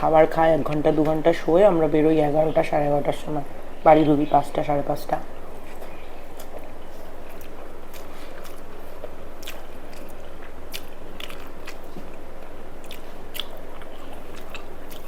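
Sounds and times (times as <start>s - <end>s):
chewing and biting food: 5.4s - 15.0s.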